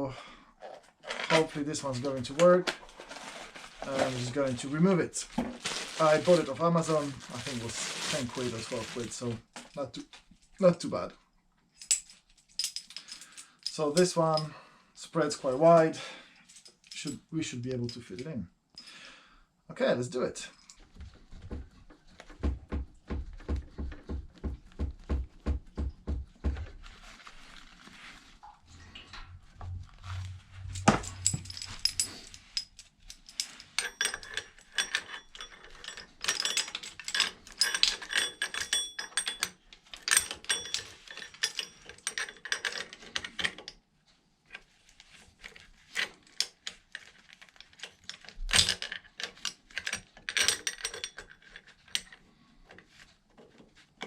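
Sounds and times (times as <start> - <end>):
metal tools clicking: 30.6 - 43.7.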